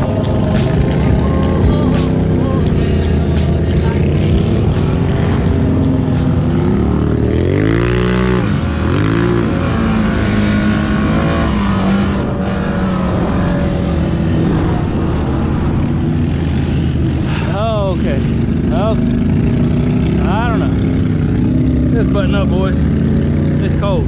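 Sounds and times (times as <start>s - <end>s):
atv engine revving: 0.0s - 24.0s.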